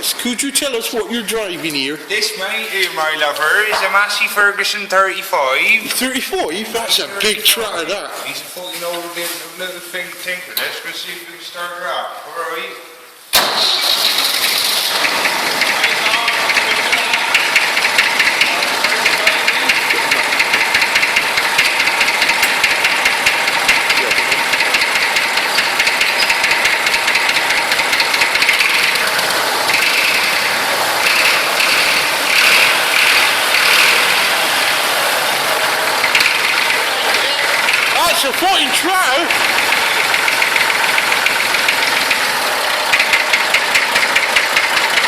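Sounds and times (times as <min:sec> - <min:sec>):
tractor engine clattering: 0:00.0 - 0:01.9, 0:05.8 - 0:08.0, 0:13.4 - 0:45.0.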